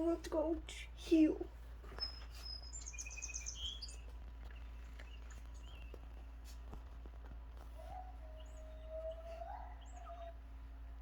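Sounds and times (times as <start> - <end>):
low steady hum: 0.0 - 11.0
faint bird chirps: 1.9 - 6.6, 7.8 - 10.4.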